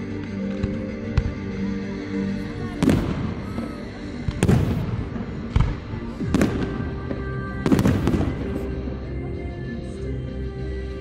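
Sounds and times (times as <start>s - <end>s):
music playing: 0.0s - 11.0s
fireworks exploding: 2.4s - 8.9s.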